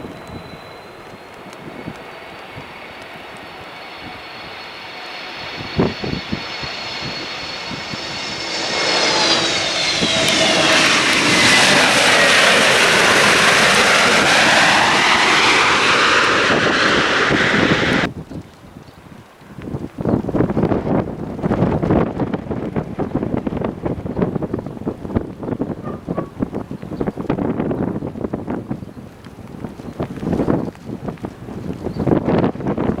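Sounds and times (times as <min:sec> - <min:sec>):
airliner flying past: 0:00.0 - 0:18.1, 0:20.4 - 0:28.6
high whining engine tones: 0:00.0 - 0:18.1.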